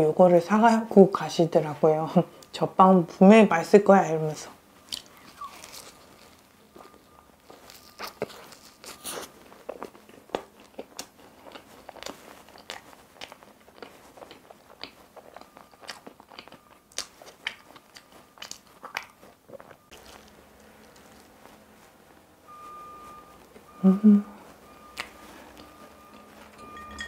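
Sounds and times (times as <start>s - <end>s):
chewing and mouth sounds: 4.9s - 21.6s, 23.6s - 26.5s.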